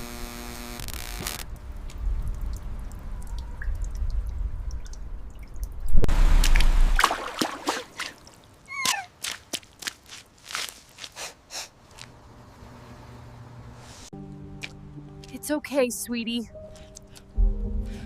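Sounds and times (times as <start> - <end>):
water dripping: 1.5 - 9.9
splashing water: 2.3 - 11.1
footsteps: 8.7 - 12.2.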